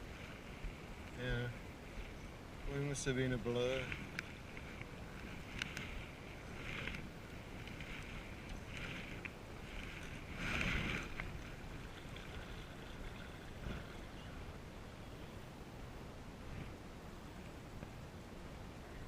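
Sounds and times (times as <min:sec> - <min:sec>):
paddle strokes splashing water: 0:00.0 - 0:15.1
faint steady hiss: 0:00.0 - 0:19.0.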